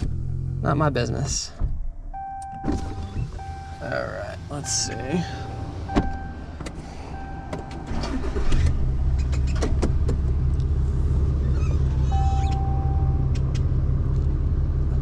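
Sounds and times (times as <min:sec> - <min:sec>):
dashboard warning chime: 0:02.2 - 0:08.4, 0:12.0 - 0:13.3.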